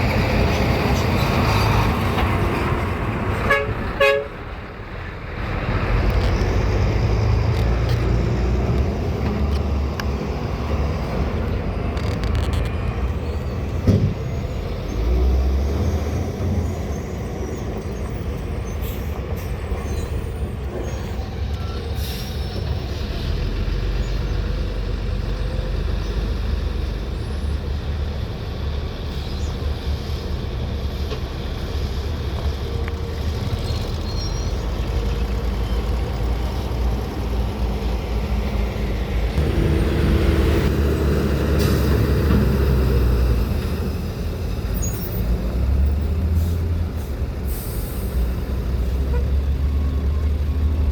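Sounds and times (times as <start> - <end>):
dump truck diesel engines rumbling: 0.0 - 50.9.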